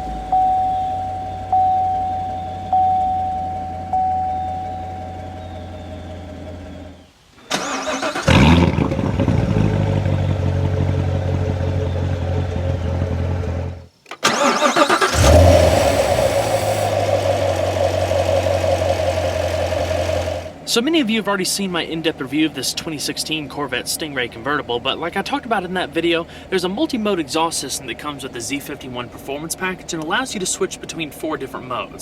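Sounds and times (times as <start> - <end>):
car engine starting and idling: 0.0 - 20.8, 21.7 - 32.0.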